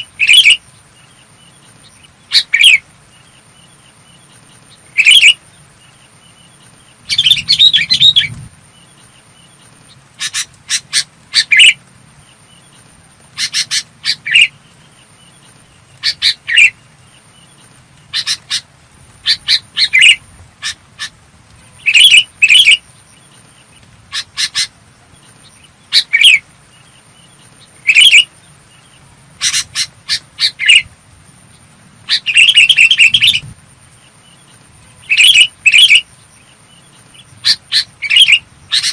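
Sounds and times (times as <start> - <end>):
bulbul singing: 0.0 - 38.9.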